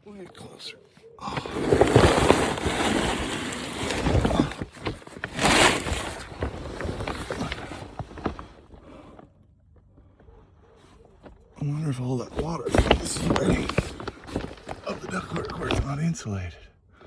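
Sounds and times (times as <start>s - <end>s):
person crawling scraping ground: 1.2s - 9.3s, 10.8s - 16.1s.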